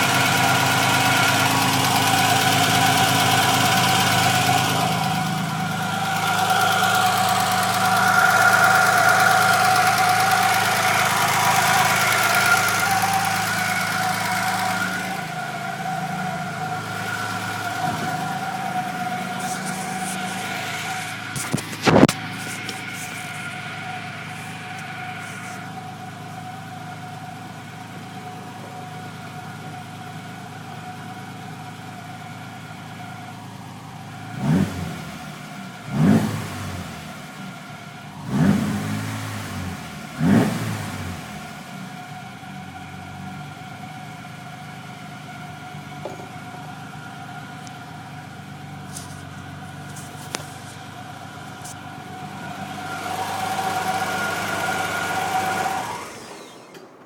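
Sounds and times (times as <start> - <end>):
car engine idling and revving: 0.0 - 57.0
high-pitched whine: 1.8 - 27.6.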